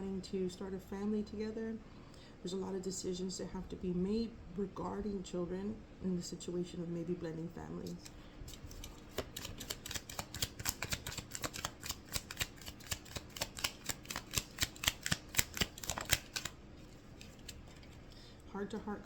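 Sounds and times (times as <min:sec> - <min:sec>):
cards being shuffled: 0:07.8 - 0:18.2.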